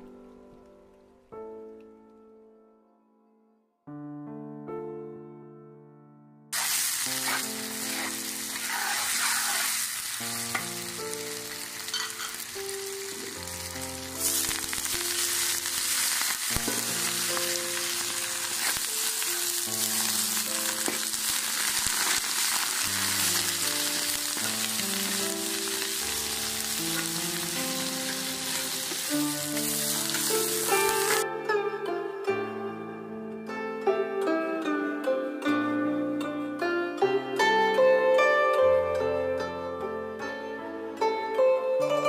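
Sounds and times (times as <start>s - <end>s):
soft piano music: 0.0s - 42.0s
potatoes sizzling in oil: 6.6s - 31.2s
spatula stirring in wok: 7.2s - 9.8s.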